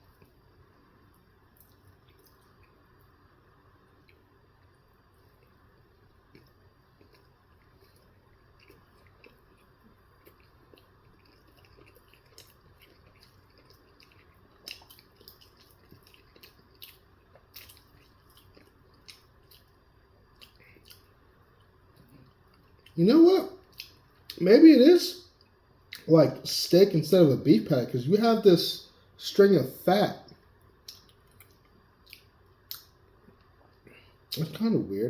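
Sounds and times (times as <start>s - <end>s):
chewing with wet mouth clicks: 1.6s - 3.1s, 4.0s - 5.6s, 6.2s - 23.0s, 23.6s - 24.4s, 30.8s - 34.6s.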